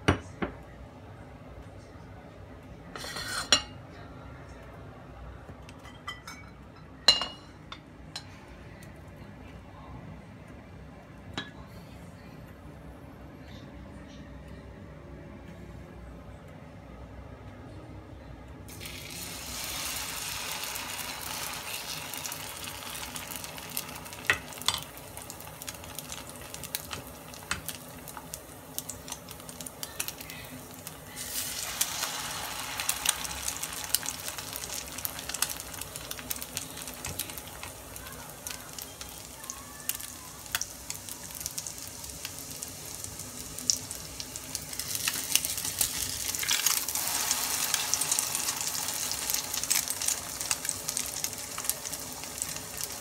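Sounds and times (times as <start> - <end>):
patties sizzling in hot oil: 18.7 - 53.0.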